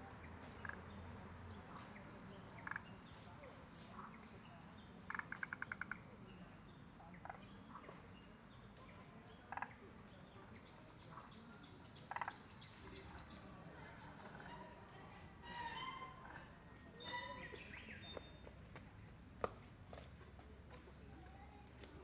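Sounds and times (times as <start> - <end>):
rattling bird call: 15.4 - 16.4.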